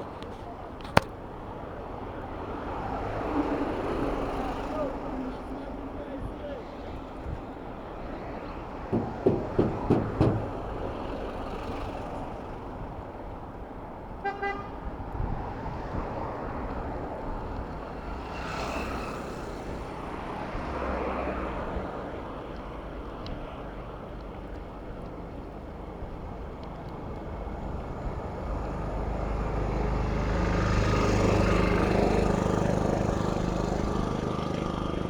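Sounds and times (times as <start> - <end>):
rumble of passing vehicles: 0.0 - 35.0
vehicle horns honking: 14.2 - 14.9.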